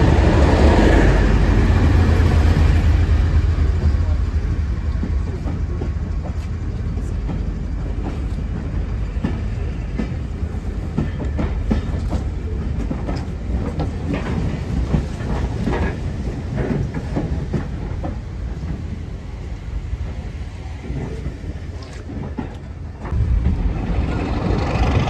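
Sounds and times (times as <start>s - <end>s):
train coaches rumbling past: 0.0s - 25.0s
wheel clacks over rail joints: 4.9s - 19.0s.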